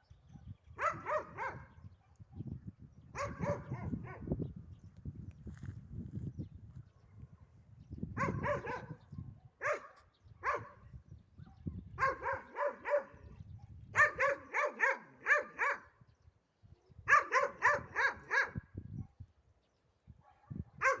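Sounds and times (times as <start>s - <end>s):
dog barking: 0.3s - 2.5s, 3.2s - 4.3s, 8.2s - 10.8s, 11.4s - 16.0s, 17.1s - 19.2s, 20.2s - 21.0s.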